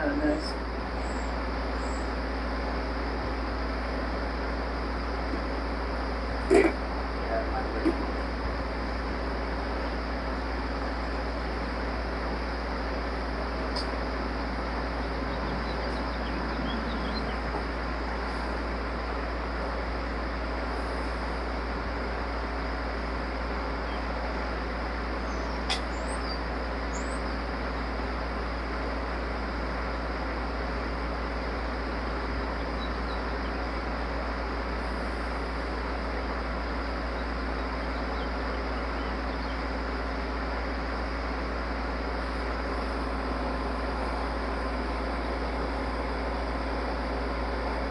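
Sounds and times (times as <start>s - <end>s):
low hum and hiss: 0.0s - 47.9s
faint bird-like chirps: 25.2s - 27.3s
sharp click: 25.7s - 25.9s.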